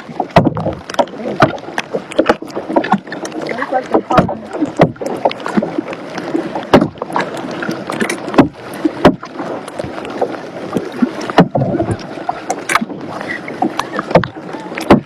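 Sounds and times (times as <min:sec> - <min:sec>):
paddle strokes in water: 0:00.0 - 0:15.0
sharp knocks: 0:00.2 - 0:01.6, 0:06.7 - 0:07.0.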